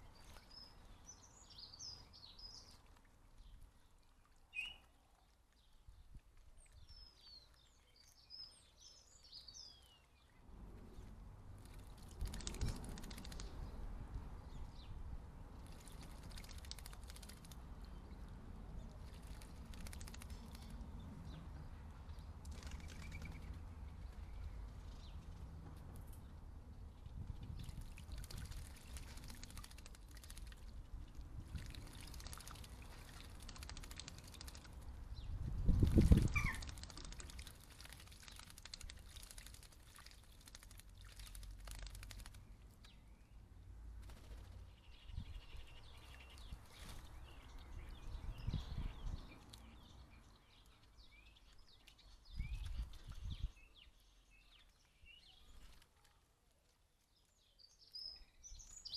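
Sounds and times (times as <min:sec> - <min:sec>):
faint bird chirps: 0:04.5 - 0:05.0, 0:36.0 - 0:37.2
water splashing: 0:27.5 - 0:35.0, 0:35.7 - 0:42.5.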